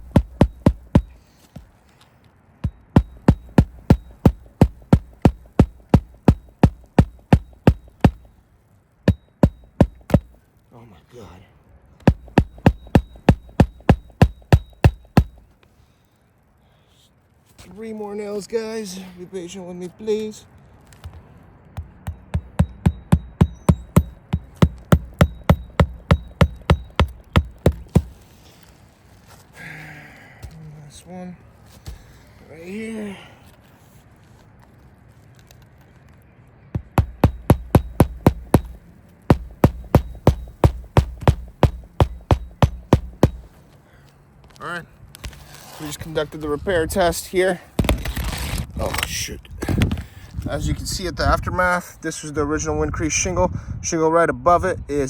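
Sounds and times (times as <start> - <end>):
hammer striking roofing nails: 0.0 - 1.7, 2.6 - 8.3, 9.1 - 10.4, 12.0 - 15.5, 21.8 - 28.2, 36.8 - 43.6.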